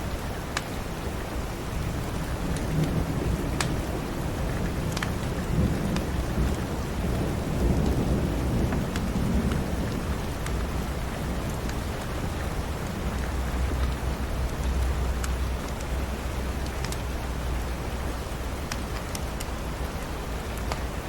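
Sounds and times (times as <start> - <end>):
steady rain: 0.0 - 21.0
wood fire crackling: 1.6 - 21.0
thunder rumbling: 2.2 - 13.5.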